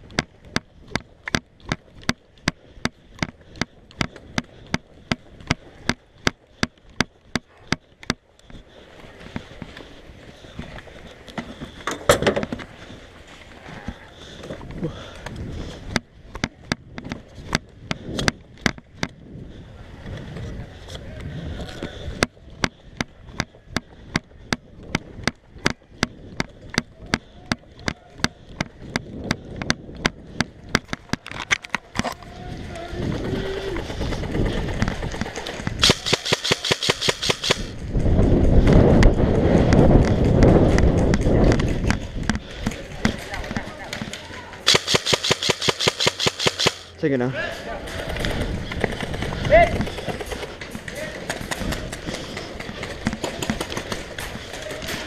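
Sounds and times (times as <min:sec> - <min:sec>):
sharp clicks: 0:35.6 - 0:37.8, 0:44.0 - 0:47.0.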